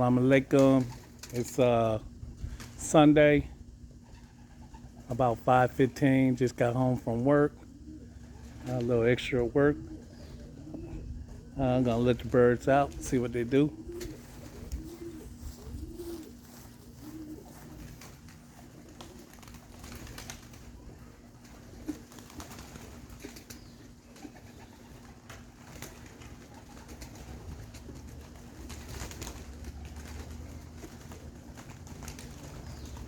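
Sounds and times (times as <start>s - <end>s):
pigeons cooing: 0.0s - 5.3s, 6.0s - 33.0s.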